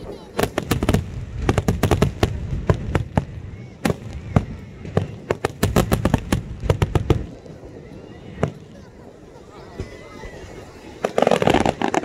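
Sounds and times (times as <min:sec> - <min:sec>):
fireworks shells bursting: 0:11.0 - 0:12.0.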